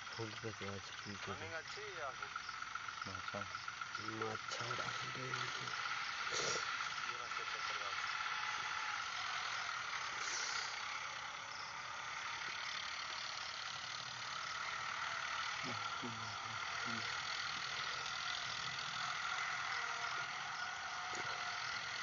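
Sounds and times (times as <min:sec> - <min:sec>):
tractor engine running: 0:00.0 - 0:22.0
faint voices: 0:03.0 - 0:11.2, 0:13.4 - 0:22.0.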